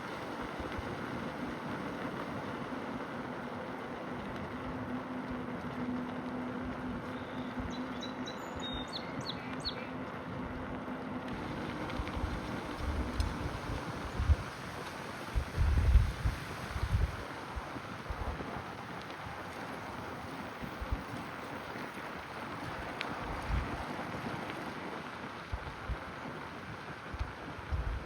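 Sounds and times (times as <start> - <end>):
small bird chirping: 7.1 - 9.9
wind thumping on microphone: 11.3 - 19.3, 22.5 - 28.0.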